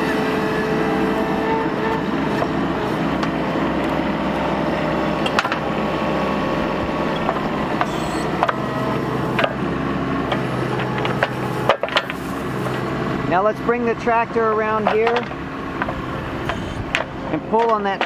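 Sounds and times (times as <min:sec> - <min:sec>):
diesel excavator engine running: 0:00.0 - 0:18.0
sharp knocks of wood cracking: 0:14.8 - 0:18.0.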